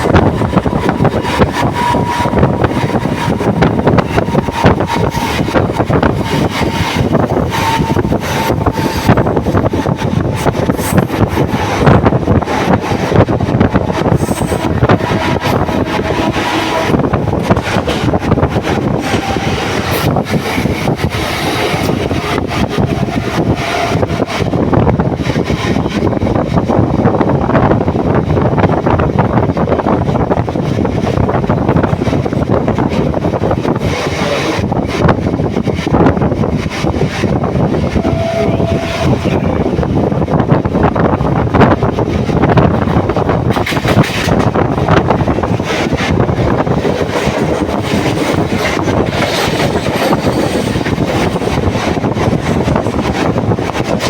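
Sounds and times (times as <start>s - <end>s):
train rumbling and rattling: 0.0s - 54.0s
wind buffeting microphone: 0.0s - 54.0s
brief steady tone: 38.0s - 39.4s.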